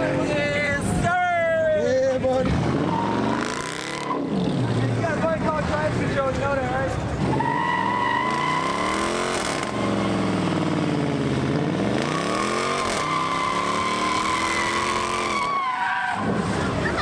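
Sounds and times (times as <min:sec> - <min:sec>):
car engine revving: 0:02.4 - 0:06.1, 0:06.8 - 0:16.8
tyre squeal: 0:02.8 - 0:04.4, 0:07.3 - 0:10.4, 0:12.1 - 0:16.4.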